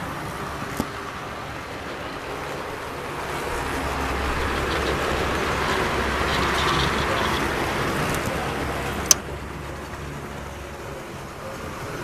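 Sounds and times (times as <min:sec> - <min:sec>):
model train rumbling: 0:00.0 - 0:12.0.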